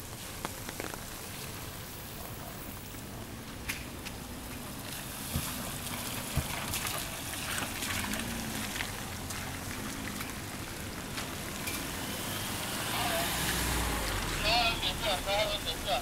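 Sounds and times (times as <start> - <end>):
steady rain: 0.0 - 16.0
water trickling: 4.0 - 15.1.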